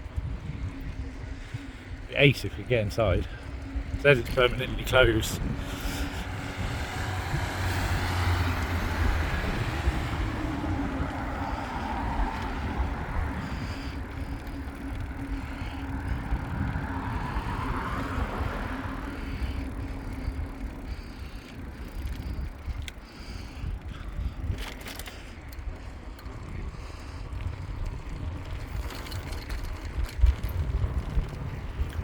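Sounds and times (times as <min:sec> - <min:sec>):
steady low hum: 0:00.0 - 0:24.5
bicycle tyre and road noise: 0:00.0 - 0:32.0
wind buffeting microphone: 0:00.0 - 0:32.0.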